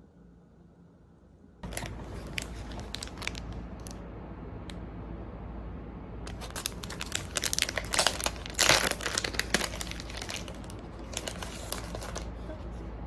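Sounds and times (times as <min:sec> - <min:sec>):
packaging crinkling: 0:01.6 - 0:04.0, 0:06.3 - 0:12.6.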